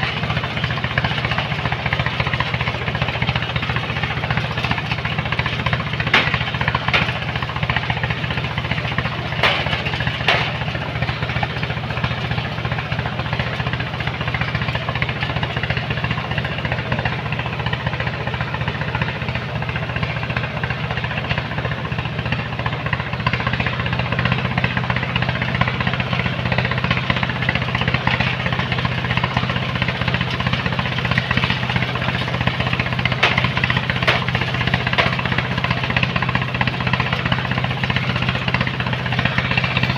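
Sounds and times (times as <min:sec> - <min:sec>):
diesel engine running under load: 0:00.0 - 0:39.9
sharp metallic clanks: 0:06.0 - 0:07.8, 0:08.9 - 0:10.9, 0:33.0 - 0:35.4.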